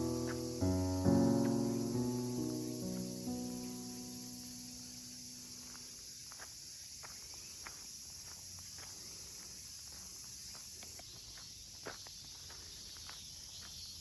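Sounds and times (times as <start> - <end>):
piano music: 0.0 - 5.6
steady high hiss: 0.0 - 7.0.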